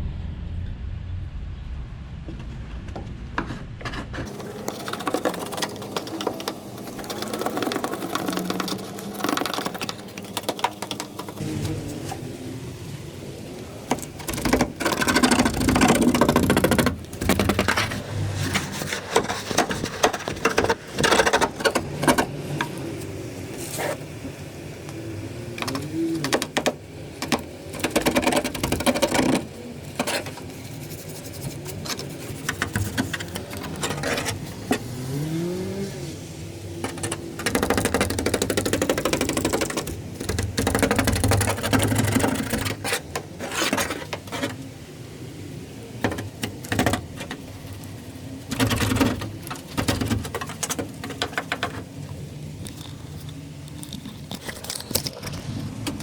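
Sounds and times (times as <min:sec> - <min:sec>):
short rising whine: 0:00.0 - 0:04.2
rubbing or scraping: 0:03.1 - 0:12.4, 0:13.7 - 0:24.2, 0:25.6 - 0:44.8, 0:46.0 - 0:56.0
knocks and clicks: 0:36.8 - 0:44.6, 0:48.5 - 0:52.0.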